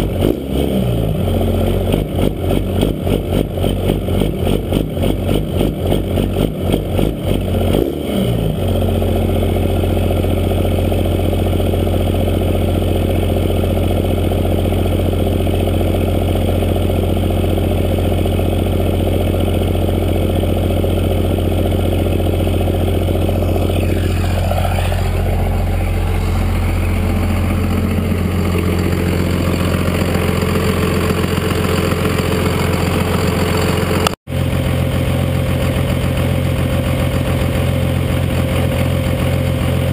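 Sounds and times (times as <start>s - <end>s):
diesel truck engine idling: 8.5s - 39.9s.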